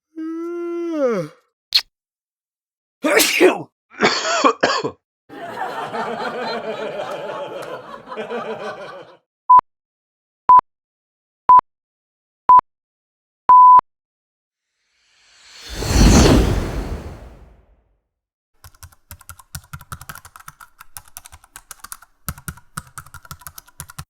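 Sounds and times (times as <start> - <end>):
short sweep: 15.3 - 17.6.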